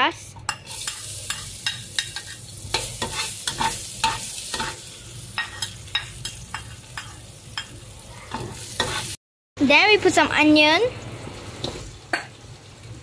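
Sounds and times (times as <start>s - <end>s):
metal ladle scraping a wok: 0.5s - 9.2s
lemongrass sizzling in hot oil: 0.6s - 9.2s, 9.8s - 13.0s.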